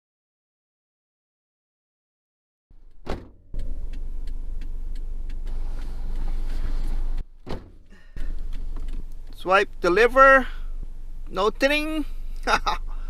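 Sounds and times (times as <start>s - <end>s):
car cabin low rumble: 2.7s - 13.0s
light regular ticks: 3.6s - 6.7s.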